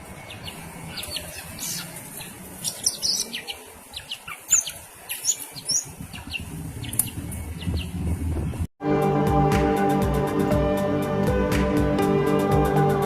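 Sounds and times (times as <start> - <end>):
bird chirping and whistling: 0.2 - 8.0.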